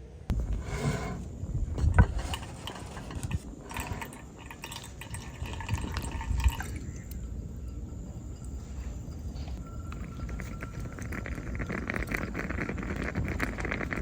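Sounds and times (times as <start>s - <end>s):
liquid pouring and dripping: 3.6s - 7.3s.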